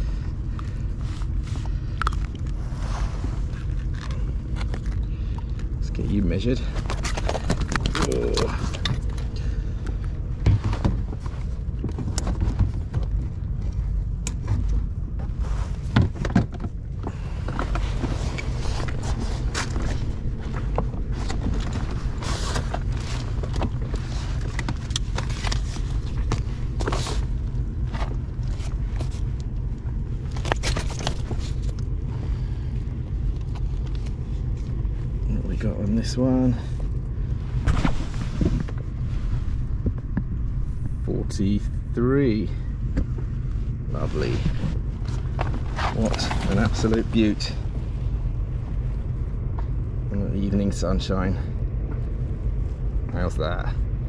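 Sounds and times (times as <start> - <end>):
low rumble: 0.0 - 54.0
scrapes and clicks of gear handling: 0.4 - 40.6, 43.1 - 47.5
handling knocks and thuds: 10.4 - 13.3, 14.4 - 18.2
wind rumble on microphone: 34.8 - 41.9.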